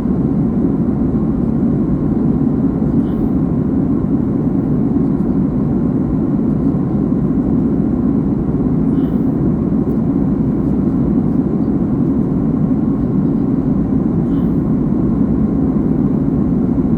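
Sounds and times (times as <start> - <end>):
airliner cabin engine drone: 0.0 - 16.9.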